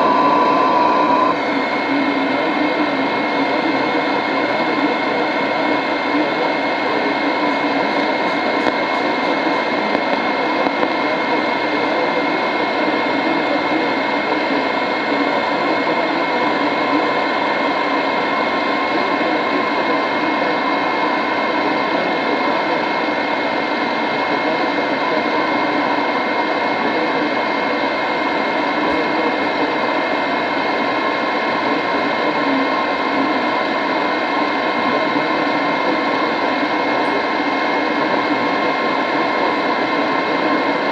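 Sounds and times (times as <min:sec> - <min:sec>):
radio static rush: 0:00.0 - 0:40.9.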